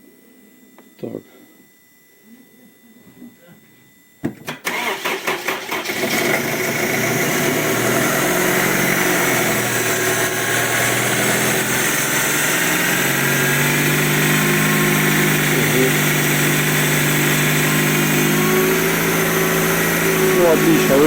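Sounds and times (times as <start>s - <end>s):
engine cranking and starting: 4.5s - 12.5s, 13.9s - 21.0s
engine fast idle: 4.5s - 21.0s.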